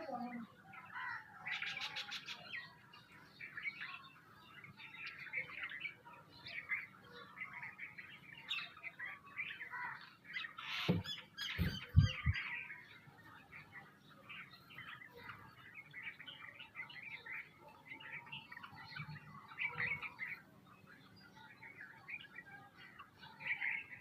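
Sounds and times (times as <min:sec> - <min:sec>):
small birds chirping: 0:00.0 - 0:24.0
low thumps: 0:11.6 - 0:12.4.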